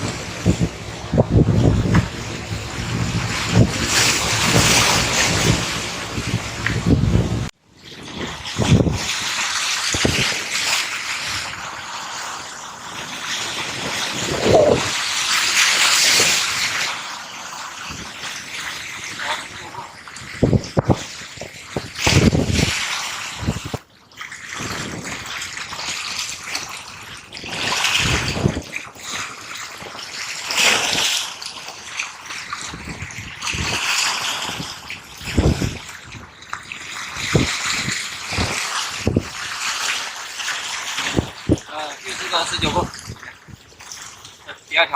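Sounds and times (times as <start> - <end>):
wind buffeting microphone: 0.0 - 10.4, 13.6 - 15.0, 19.8 - 23.8, 27.5 - 29.0, 32.5 - 36.4, 37.1 - 39.4, 41.0 - 41.7, 42.4 - 43.8
water sloshing: 0.0 - 44.9
waves: 0.0 - 44.9.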